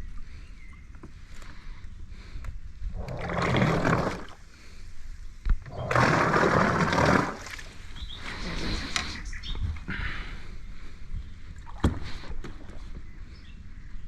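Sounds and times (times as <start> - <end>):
water splashing against boat hull: 5.7 - 9.1.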